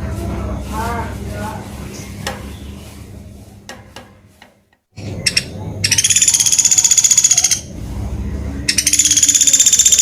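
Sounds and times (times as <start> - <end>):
woodpecker rattling call: 5.3 - 7.6, 8.7 - 10.0.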